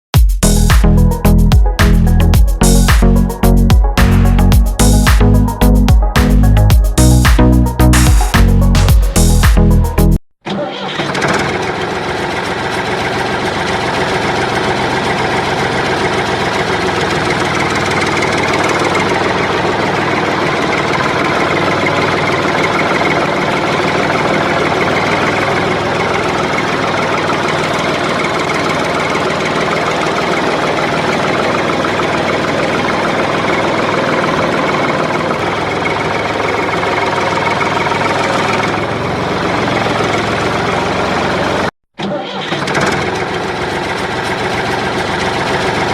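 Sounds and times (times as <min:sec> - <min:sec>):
diesel engine knocking: 0:11.1 - 0:41.7, 0:42.6 - 0:45.9.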